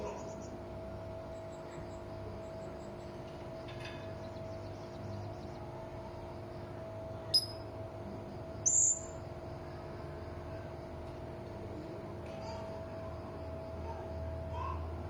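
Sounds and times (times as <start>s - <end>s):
steady low hum: 0.0s - 15.0s
parrot call: 7.4s - 7.6s, 8.6s - 9.2s.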